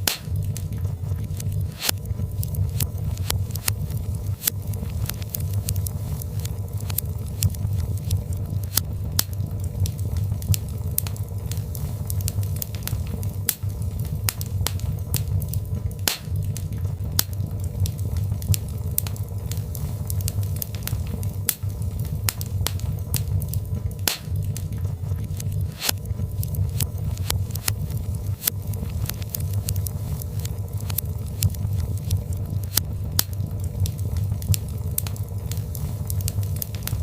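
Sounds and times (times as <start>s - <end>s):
fire crackling and popping: 0.0s - 37.0s
low rumble of fire: 0.0s - 37.0s.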